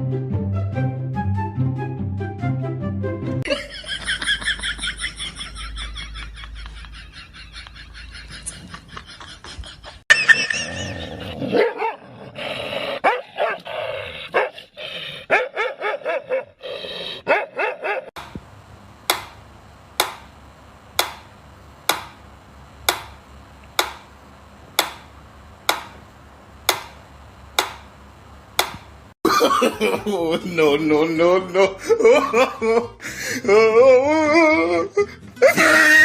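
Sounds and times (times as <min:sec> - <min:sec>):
dog barking and yelping: 0:11.5 - 0:12.1, 0:13.0 - 0:13.7, 0:14.3 - 0:14.6, 0:15.3 - 0:16.6, 0:17.2 - 0:18.2.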